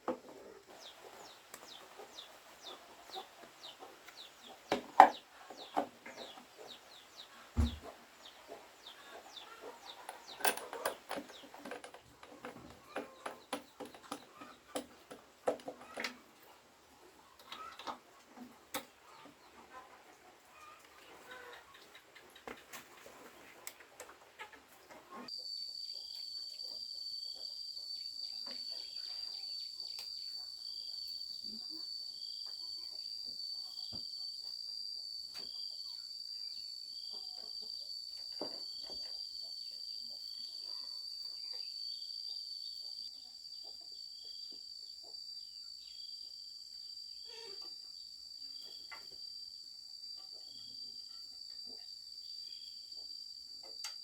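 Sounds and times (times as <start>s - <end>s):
faint clicks and knocks: 8.8s - 16.6s.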